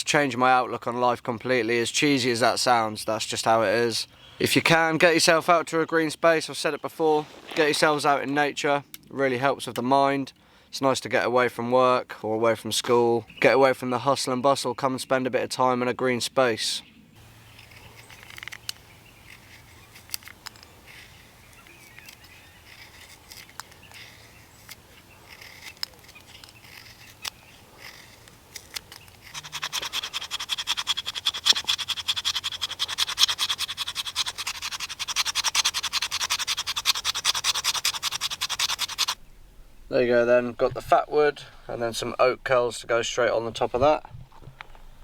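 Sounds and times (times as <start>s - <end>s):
knife scraping wood: 17.2s - 39.2s.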